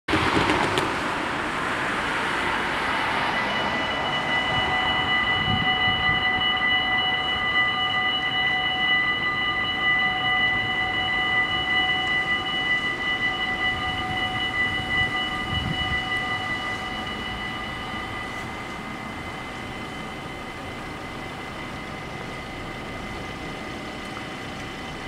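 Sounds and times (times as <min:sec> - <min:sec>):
passing vehicle rushing: 0:00.1 - 0:07.6
level crossing warning bells: 0:01.3 - 0:25.0.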